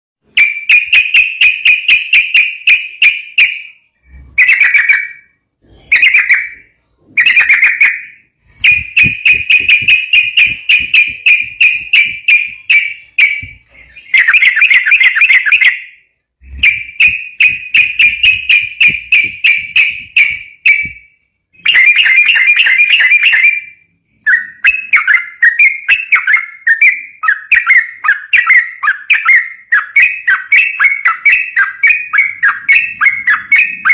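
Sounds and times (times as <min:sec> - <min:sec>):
bird singing rattling whistles: 0:07.2 - 0:21.0, 0:21.6 - 0:23.7.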